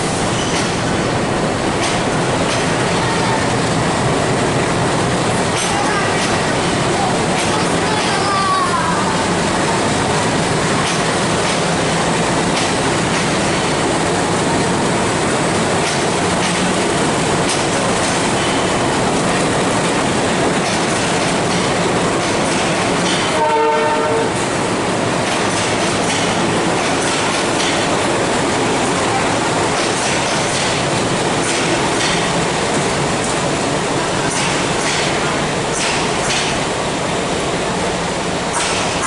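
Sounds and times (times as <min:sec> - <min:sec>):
train wheels clattering over rail joints: 0:00.3 - 0:01.0, 0:01.6 - 0:02.9, 0:05.4 - 0:08.4, 0:10.6 - 0:24.0, 0:25.0 - 0:36.8, 0:38.4 - 0:39.0
train horn blast: 0:23.2 - 0:24.4.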